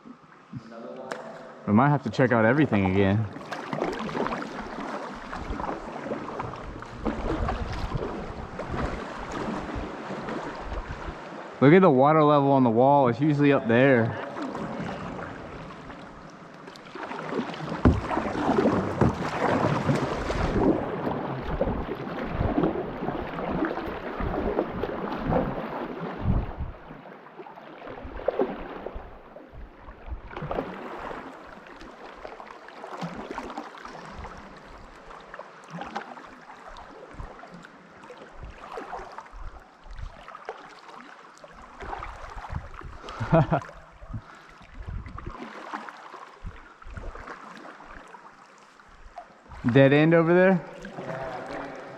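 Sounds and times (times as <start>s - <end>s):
paddle splashing in water: 2.2s - 11.7s, 13.2s - 51.9s
paddle knocking on hull: 2.8s - 11.1s, 16.8s - 26.8s.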